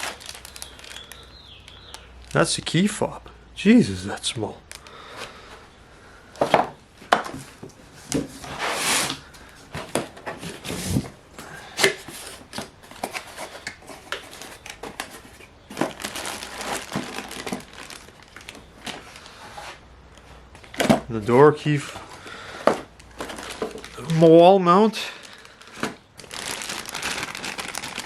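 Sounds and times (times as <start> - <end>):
plastic wrapping crinkling: 0.0 - 3.0, 7.1 - 28.0.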